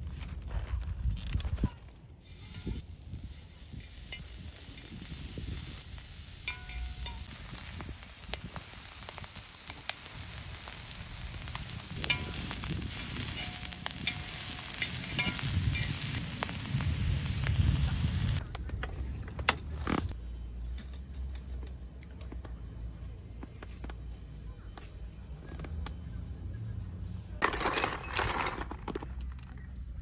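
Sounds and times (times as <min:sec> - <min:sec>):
food sizzling on a grill: 0:02.2 - 0:18.4.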